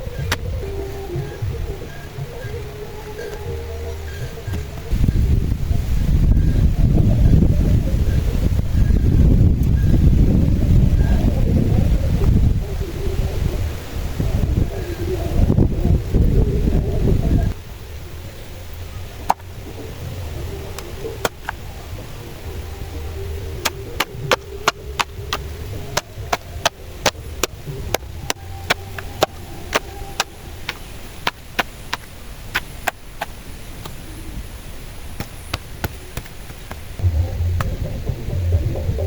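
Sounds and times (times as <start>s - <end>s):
low wind rumble: 0.0s - 39.0s
hand tool chopping strikes: 23.6s - 34.0s, 35.2s - 36.8s.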